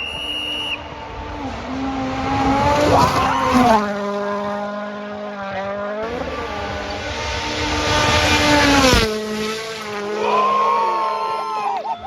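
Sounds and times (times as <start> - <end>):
car engine revving: 0.1 - 11.0
tyre squeal: 2.9 - 3.8.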